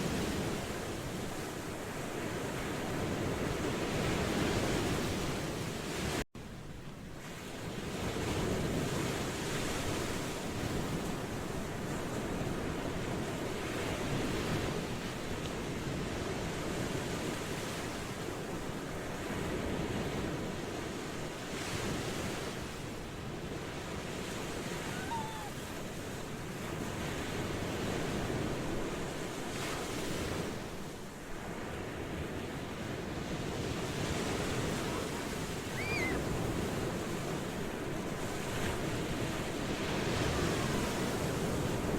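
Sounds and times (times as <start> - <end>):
ocean waves washing in: 0.0 - 41.9
faint short chirps: 35.7 - 36.2.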